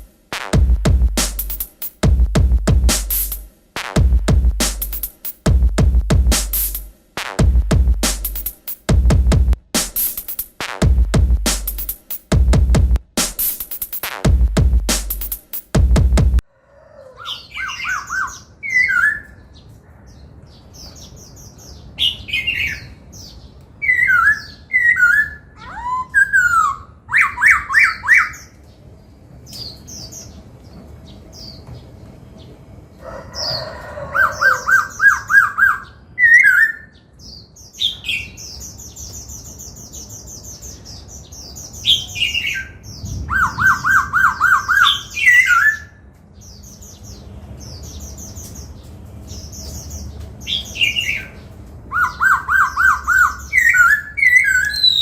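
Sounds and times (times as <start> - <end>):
bird singing whistled phrases: 17.3 - 19.4, 23.8 - 28.5, 34.5 - 37.0, 41.8 - 46.0, 50.5 - 55.0.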